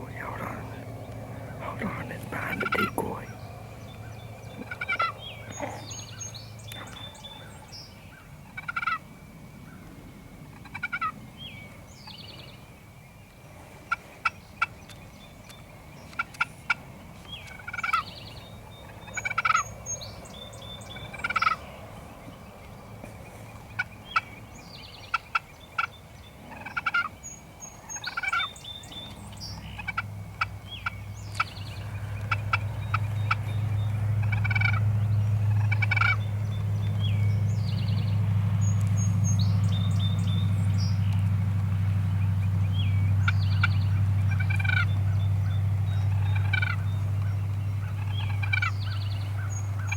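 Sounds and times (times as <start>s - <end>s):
turkeys gobbling: 4.6s - 5.8s, 29.8s - 36.2s, 43.2s - 44.9s, 46.1s - 46.9s, 47.9s - 48.8s.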